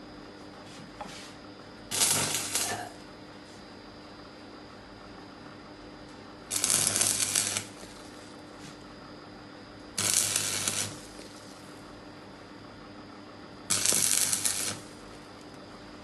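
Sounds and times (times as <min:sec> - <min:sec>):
low electrical hum: 0:00.0 - 0:16.0
welding arc crackling: 0:01.9 - 0:03.0, 0:06.5 - 0:08.3, 0:09.9 - 0:11.8, 0:13.6 - 0:15.2.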